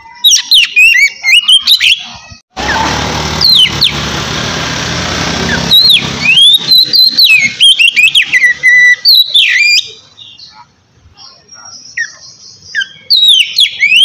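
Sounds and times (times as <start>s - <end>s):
bird singing whistled phrases: 0.0s - 2.1s, 5.6s - 10.6s, 11.3s - 14.0s.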